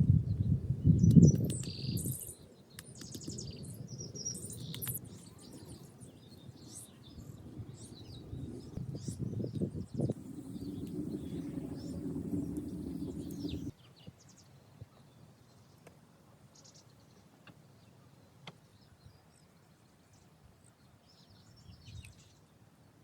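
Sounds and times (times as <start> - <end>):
faint bird chirps: 0.3 - 15.7
sharp ticks: 1.0 - 2.2, 2.8 - 3.4, 4.4 - 5.2
low rushing noise: 7.4 - 13.7.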